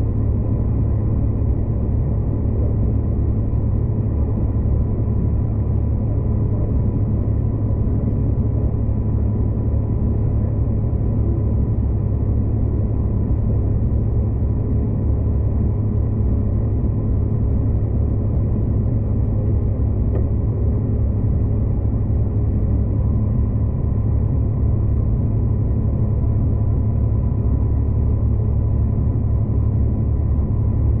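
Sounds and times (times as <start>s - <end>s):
passenger train rumbling: 0.0s - 31.0s.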